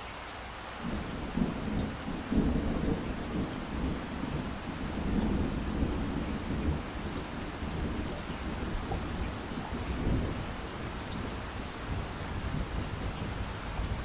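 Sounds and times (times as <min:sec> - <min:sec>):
rain falling: 0:00.0 - 0:14.0
rolling thunder: 0:00.8 - 0:14.0.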